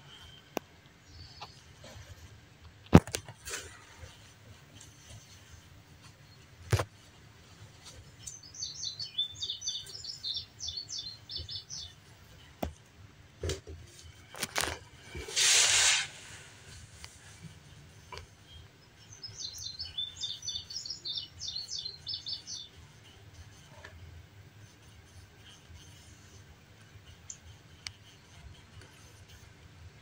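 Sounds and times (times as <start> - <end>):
small bird chirping: 8.2 - 12.0, 18.4 - 23.6
hissing rustle: 14.3 - 17.6.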